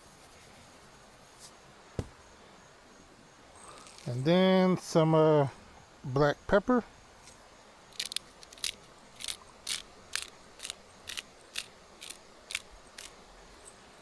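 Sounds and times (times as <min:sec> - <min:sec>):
pepper grinder crunching: 0:08.0 - 0:13.1.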